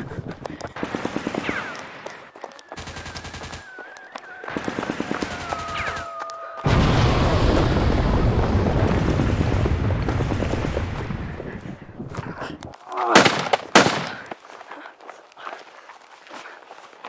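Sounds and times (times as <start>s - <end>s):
machine-gun fire: 0.8s - 2.0s, 4.5s - 6.1s
loud blast and rumble: 6.7s - 12.0s.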